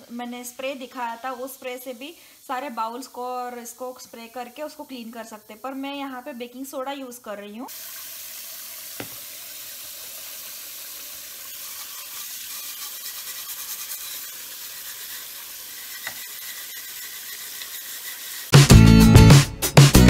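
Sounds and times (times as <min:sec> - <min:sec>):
faucet running into steel sink: 0:07.7 - 0:18.5
scrubbing strokes: 0:11.6 - 0:18.6.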